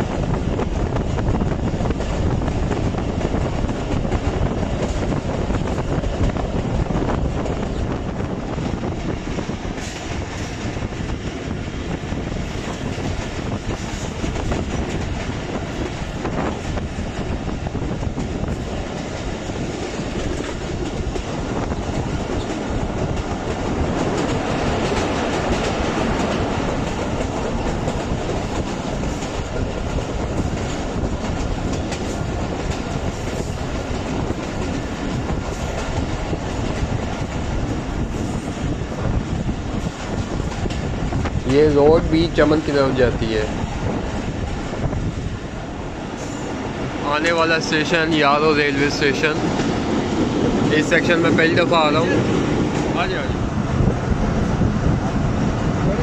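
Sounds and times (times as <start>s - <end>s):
rail clatter and clicks: 0.0s - 56.0s
train wheels rumbling: 0.0s - 56.0s.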